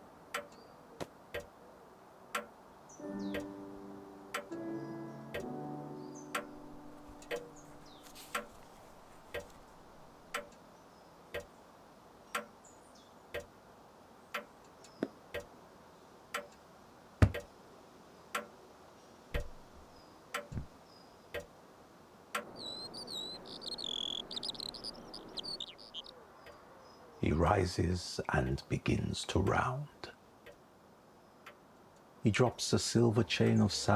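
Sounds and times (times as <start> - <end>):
birdsong: 2.6 - 3.7, 4.4 - 11.7, 22.4 - 29.8
clock ticking: 3.2 - 3.5, 4.3 - 4.6, 5.3 - 5.5, 6.3 - 8.6, 9.3 - 10.6, 17.2 - 17.5, 19.4 - 19.8, 20.4 - 20.7, 22.4 - 26.1.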